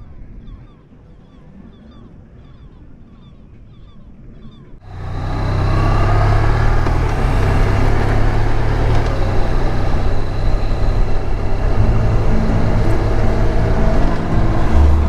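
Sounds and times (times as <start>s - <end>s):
road noise: 4.8s - 15.0s
motorcycle engine running: 4.9s - 15.0s
wind noise: 4.9s - 15.0s.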